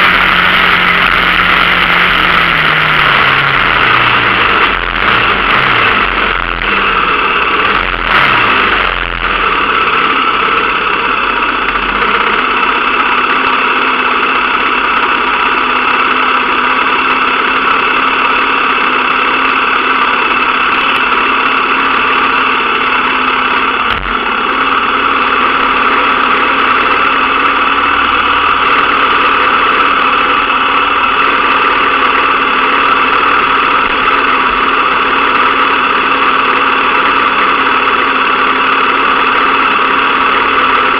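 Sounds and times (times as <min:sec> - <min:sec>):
dirt bike engine running: 0:00.0 - 0:40.9.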